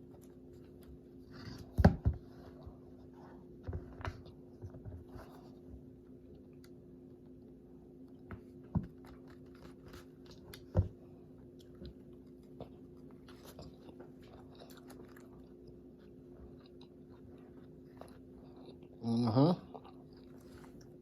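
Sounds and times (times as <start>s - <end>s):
steady low hum: 0.0s - 21.0s
person chewing crispy food: 8.9s - 19.0s, 19.6s - 21.0s.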